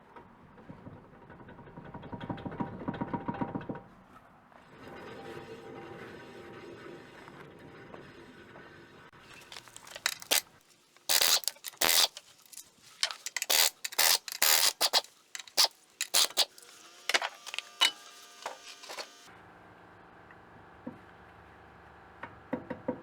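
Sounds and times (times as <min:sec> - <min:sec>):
metal tools clinking and scraping: 0:09.3 - 0:10.4, 0:11.0 - 0:19.2.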